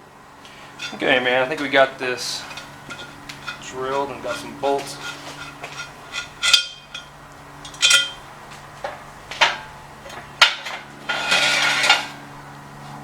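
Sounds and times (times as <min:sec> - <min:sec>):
rasping metal clatter: 0:00.7 - 0:08.2, 0:08.9 - 0:12.2
metal parts clanking: 0:00.8 - 0:08.2, 0:08.9 - 0:12.2
sharp metal knocks: 0:02.5 - 0:08.2.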